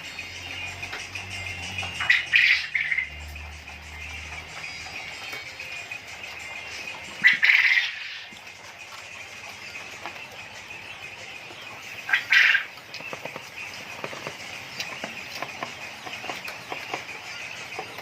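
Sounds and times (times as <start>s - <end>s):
quail chirping: 1.8s - 3.2s, 4.3s - 18.0s
loud quail call: 2.0s - 3.1s, 7.2s - 8.3s, 12.0s - 12.8s.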